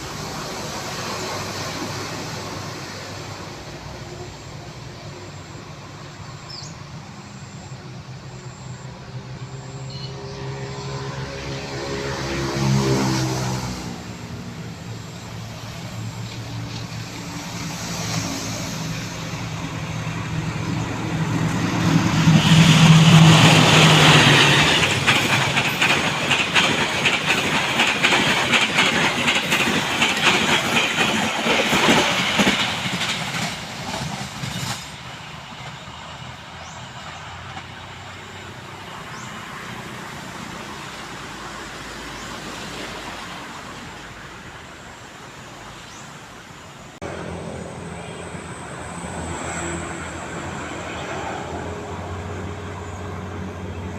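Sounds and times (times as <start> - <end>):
locomotive engine: 0.0 - 53.9
train wheels clattering over points: 21.8 - 35.9.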